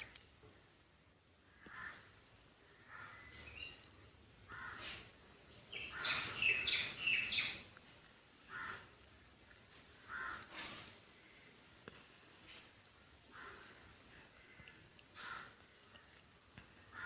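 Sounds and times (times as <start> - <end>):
baby budgies raspy calls: 5.7 - 7.6.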